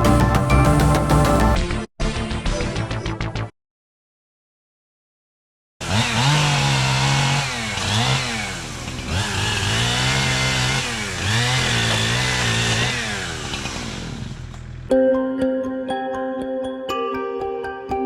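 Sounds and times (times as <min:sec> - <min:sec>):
chainsaw cutting wood: 0:05.8 - 0:14.9.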